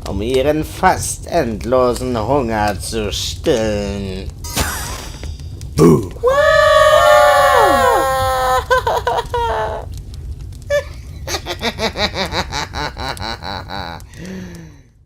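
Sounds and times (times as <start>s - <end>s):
people screaming: 6.1s - 9.9s
rhythmic cackling laugh: 8.7s - 9.6s, 11.2s - 14.1s.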